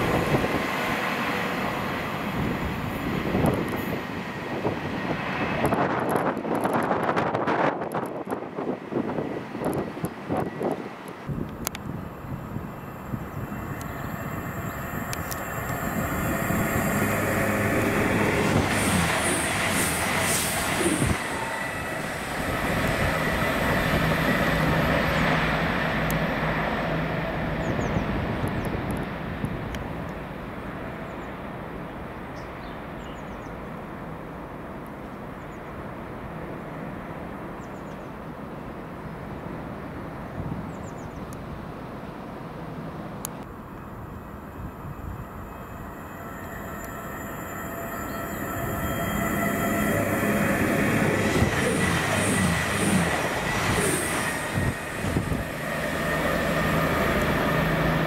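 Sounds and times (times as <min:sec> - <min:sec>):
rail noise: 0:00.0 - 0:58.0
train passing: 0:00.0 - 0:58.0.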